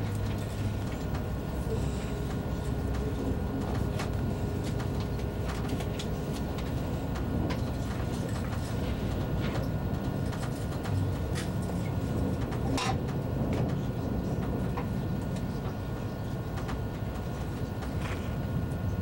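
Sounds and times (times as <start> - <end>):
train interior rumble: 0.0 - 19.0.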